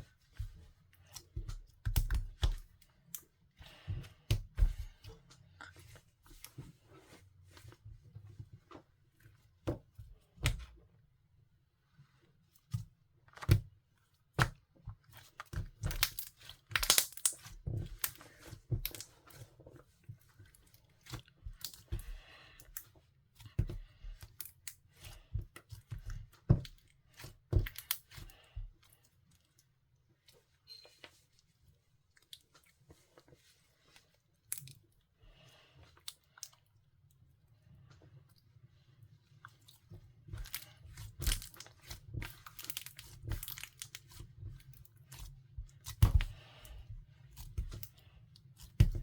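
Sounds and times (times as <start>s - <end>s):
slime clicking and popping: 15.9s - 17.5s.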